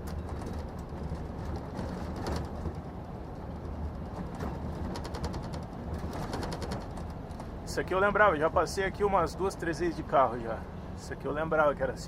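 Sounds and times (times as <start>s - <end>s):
quick light clicks or rattles: 0.0s - 7.5s
diesel truck engine humming: 0.0s - 12.0s.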